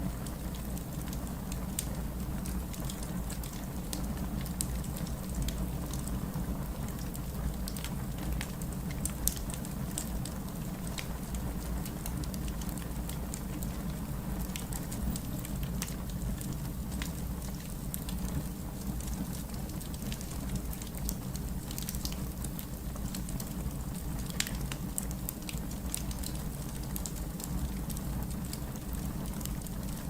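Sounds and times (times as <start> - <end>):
wood fire crackling: 0.1 - 30.0.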